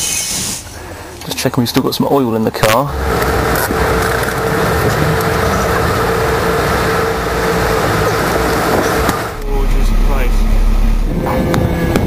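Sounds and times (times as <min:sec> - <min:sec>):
mid-pitched whine: 0:02.5 - 0:12.0
car engine idling: 0:02.6 - 0:12.0.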